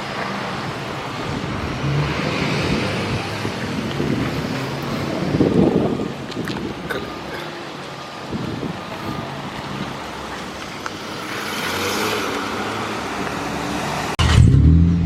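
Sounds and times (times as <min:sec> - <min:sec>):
road noise: 0:00.0 - 0:15.0
wind buffeting microphone: 0:01.1 - 0:07.0, 0:08.2 - 0:10.0.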